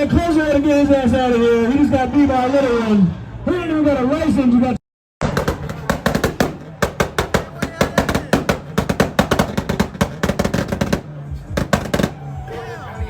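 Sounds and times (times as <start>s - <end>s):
car exhaust popping and banging: 5.2s - 12.3s.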